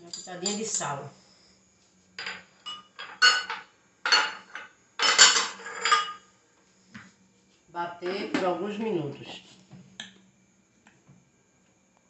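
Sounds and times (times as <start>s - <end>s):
dishes and utensils clattering: 2.2s - 6.3s.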